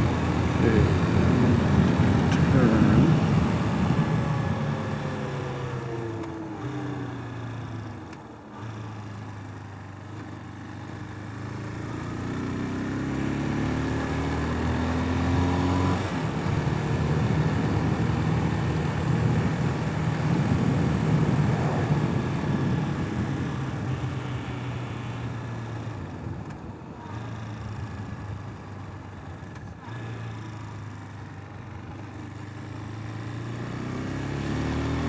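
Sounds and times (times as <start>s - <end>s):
rush of wind noise: 0.0s - 4.8s, 17.4s - 23.9s
motorcycle engine accelerating: 0.0s - 35.0s.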